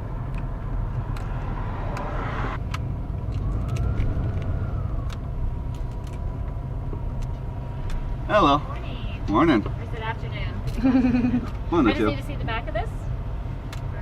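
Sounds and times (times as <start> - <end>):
car road rumble from inside: 0.0 - 14.0.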